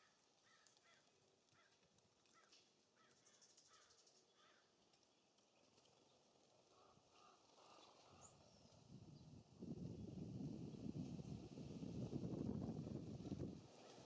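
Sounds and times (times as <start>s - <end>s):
small bird high ticks: 0.4s - 5.2s.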